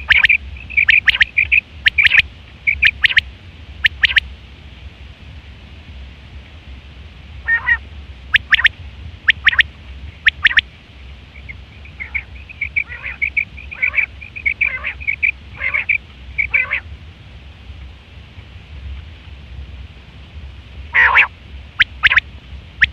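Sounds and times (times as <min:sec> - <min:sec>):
quail calling: 0:00.0 - 0:04.2, 0:07.4 - 0:08.7, 0:09.3 - 0:09.6, 0:10.2 - 0:10.6, 0:11.4 - 0:16.9, 0:21.0 - 0:22.2
steady low hum: 0:00.0 - 0:22.9.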